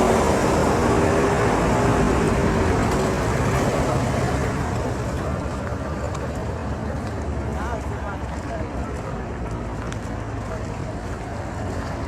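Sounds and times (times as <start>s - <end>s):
passing motor vehicle engine: 0.0s - 7.7s.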